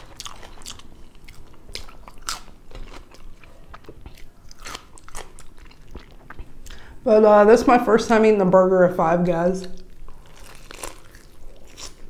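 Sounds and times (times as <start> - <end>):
person chewing: 0.0 - 6.8, 9.7 - 12.0
crisp crunches: 10.1 - 12.0.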